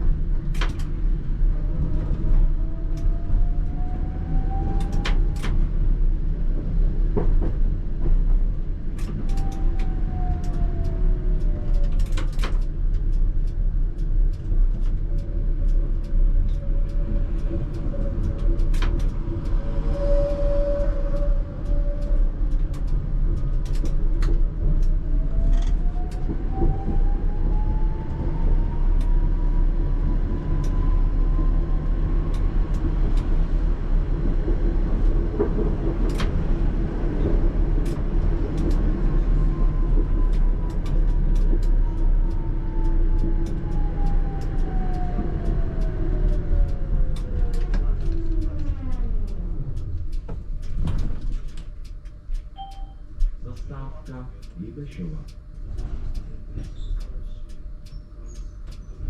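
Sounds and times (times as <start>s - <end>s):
tram motor whine: 15.5s - 54.3s
wheels clicking on rails: 32.2s - 59.0s.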